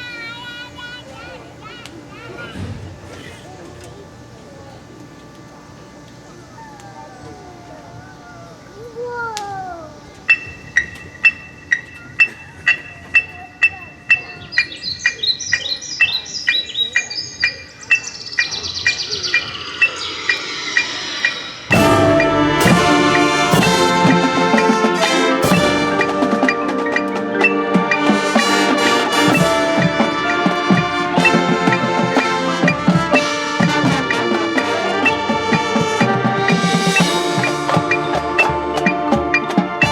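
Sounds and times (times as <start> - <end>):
electronic bird chirps: 10.3 - 22.4
mallet percussion: 21.7 - 39.9
marching band brass: 21.7 - 39.9.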